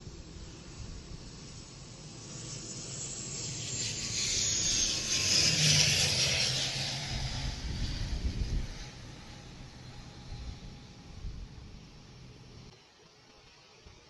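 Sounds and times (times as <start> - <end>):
airliner landing rush: 0.0 - 14.0
low hum: 0.0 - 14.0
low rumble: 5.4 - 12.7.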